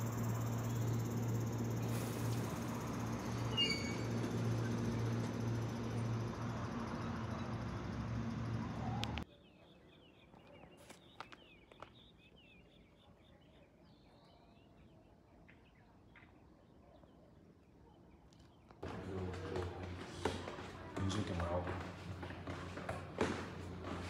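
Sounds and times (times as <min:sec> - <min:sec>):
electric train humming: 0:00.0 - 0:09.2, 0:18.8 - 0:24.0
faint small birds chirping: 0:00.0 - 0:18.8.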